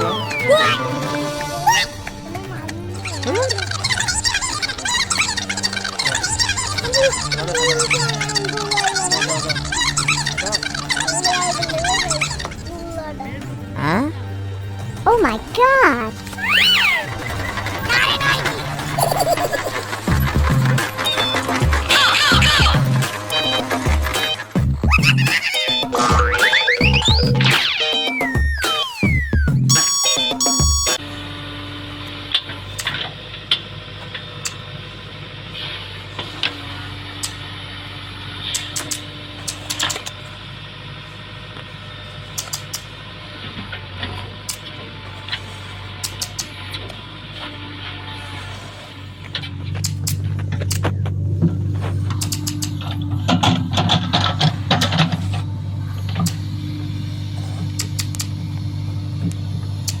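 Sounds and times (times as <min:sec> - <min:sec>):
small motor humming: 0:01.9 - 0:12.7, 0:29.2 - 1:00.0
small electric motor humming: 0:54.4 - 1:00.0.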